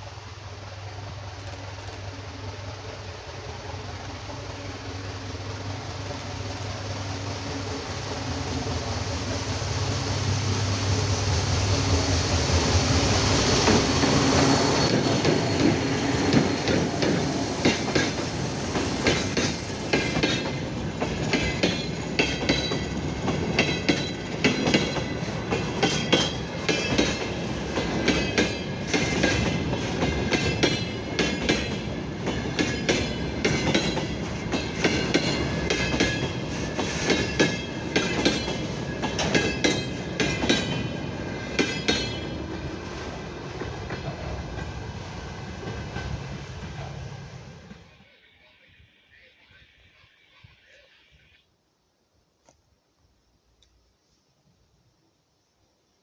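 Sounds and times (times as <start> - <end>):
diesel locomotive engine humming: 0.0 - 48.2
thin wheel squeal: 14.0 - 16.7.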